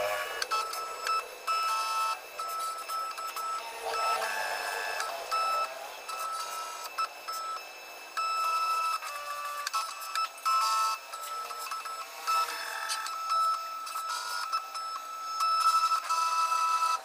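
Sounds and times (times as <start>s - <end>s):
cutting plotter motors whining: 0.0s - 17.0s.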